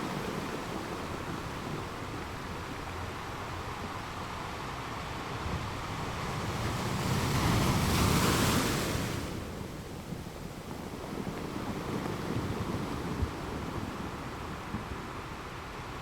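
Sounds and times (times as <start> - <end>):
surf hiss: 0.0 - 16.0
wave breaking on shore: 5.4 - 15.2.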